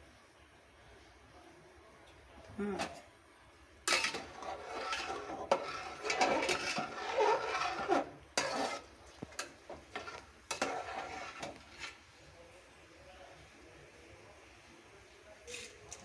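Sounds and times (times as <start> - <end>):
rice boiling: 0.0 - 15.9
spoon stirring and scraping pot: 3.9 - 12.1.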